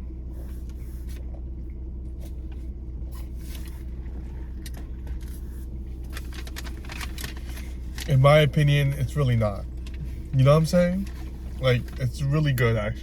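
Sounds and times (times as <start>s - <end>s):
car engine idling: 0.0s - 13.0s
soft clicks and crunches: 6.0s - 8.2s.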